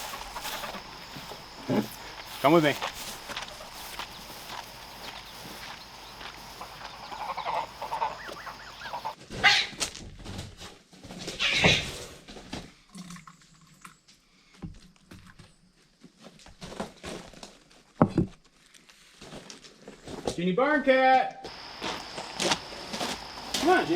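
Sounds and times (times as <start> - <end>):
ducks and geese calling: 0.0 - 9.6.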